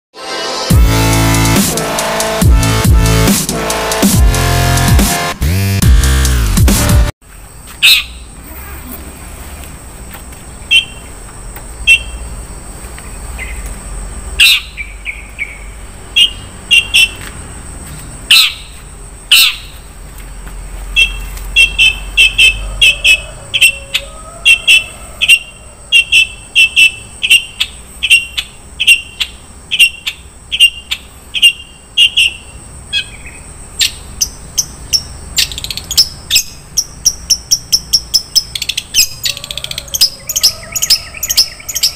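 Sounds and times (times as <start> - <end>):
bird singing sharp chips: 7.6 - 9.1, 10.0 - 12.3, 18.3 - 19.9, 20.9 - 22.6, 26.0 - 41.9.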